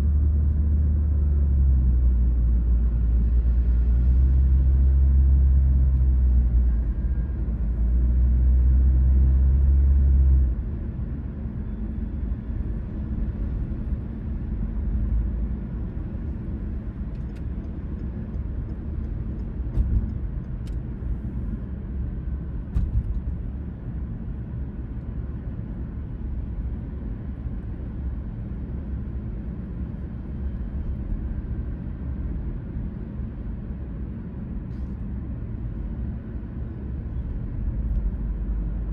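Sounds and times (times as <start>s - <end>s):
car engine and road rumble: 0.0s - 38.9s.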